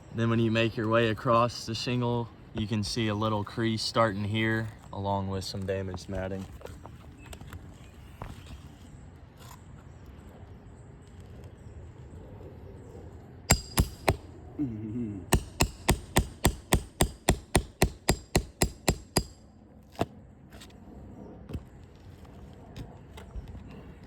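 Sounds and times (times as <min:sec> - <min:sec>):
hammer striking roof shingles: 0:15.3 - 0:19.4.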